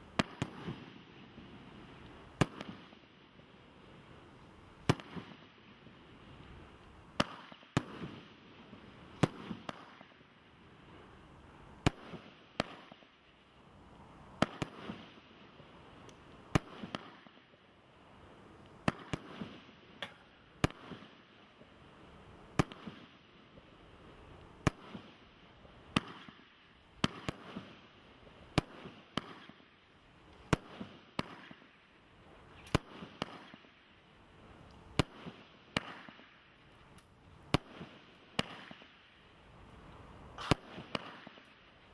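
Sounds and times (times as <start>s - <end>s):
hiss of launching fireworks: 0.0s - 41.9s
firework bangs: 0.1s - 1.5s, 2.3s - 3.1s, 4.8s - 5.6s, 7.1s - 10.3s, 14.4s - 15.2s, 16.5s - 17.5s, 18.8s - 21.4s, 22.5s - 23.2s, 25.9s - 27.8s, 28.5s - 29.8s, 32.6s - 33.8s, 34.9s - 36.4s, 37.5s - 39.0s, 40.3s - 41.6s.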